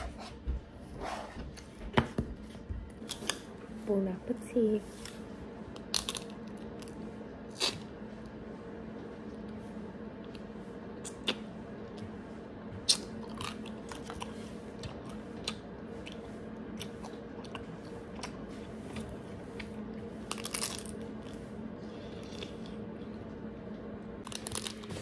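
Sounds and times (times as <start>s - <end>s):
faint steady hum: 0.0s - 25.0s
crunchy biting and chewing: 5.8s - 7.9s, 12.8s - 21.4s.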